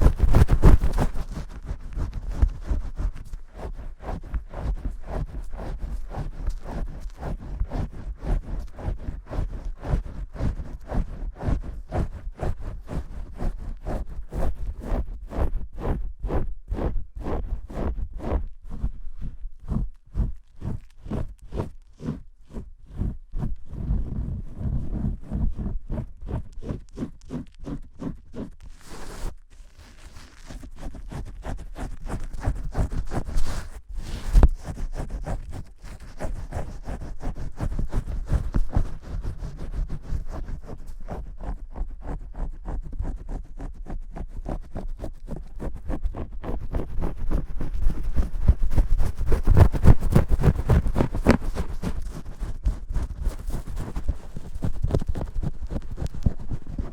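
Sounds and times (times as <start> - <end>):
fingers scrubbing hair: 0.0 - 14.0, 25.6 - 56.9.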